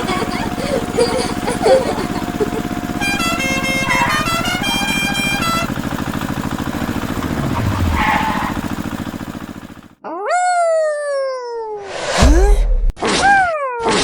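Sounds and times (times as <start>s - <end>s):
engine put-put beat: 0.0s - 10.0s
horn honks: 2.6s - 9.0s
low tone dropping in pitch: 6.8s - 8.8s.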